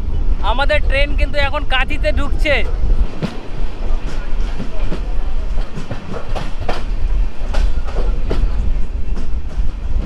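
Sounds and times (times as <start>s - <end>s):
train low rumble: 0.0s - 10.0s
wheels clacking over rail joints: 2.5s - 10.0s.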